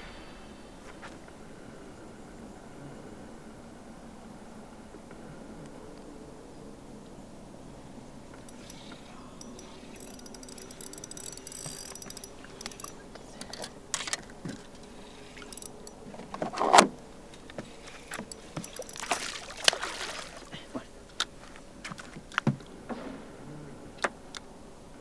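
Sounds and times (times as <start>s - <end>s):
fishing gear clicks and rattles: 8.2s - 22.9s.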